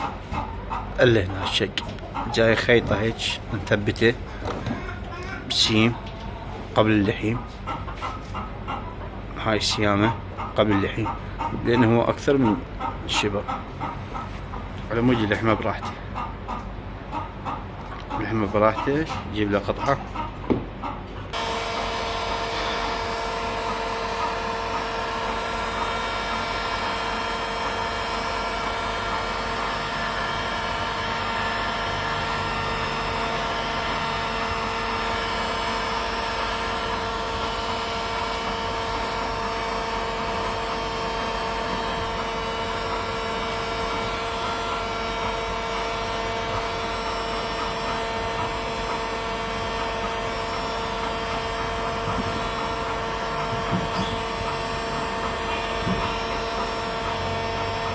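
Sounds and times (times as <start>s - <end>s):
power tool motor whine: 21.4s - 23.4s.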